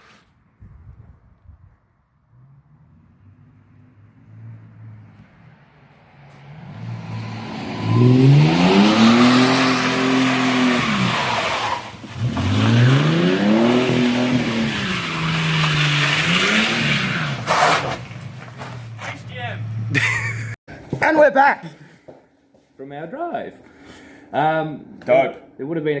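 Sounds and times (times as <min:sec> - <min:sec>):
car engine revving: 0:02.4 - 0:20.0.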